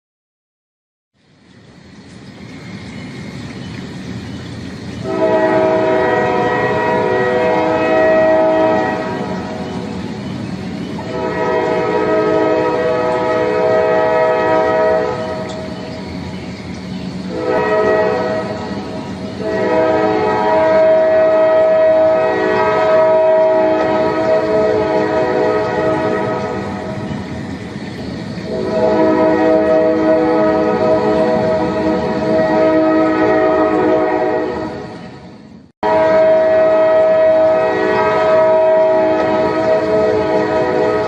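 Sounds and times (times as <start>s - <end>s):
train rumbling: 1.2s - 41.0s
train air horn: 5.0s - 9.8s, 11.0s - 15.8s, 17.3s - 27.0s, 28.4s - 35.0s, 35.8s - 41.0s.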